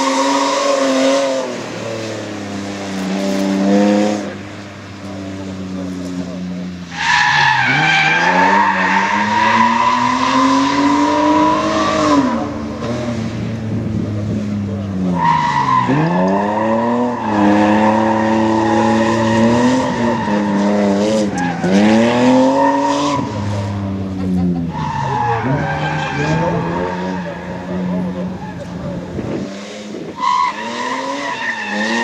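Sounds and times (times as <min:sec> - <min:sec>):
car engine at high revs: 0:00.0 - 0:32.0
tyres squealing: 0:15.1 - 0:29.1.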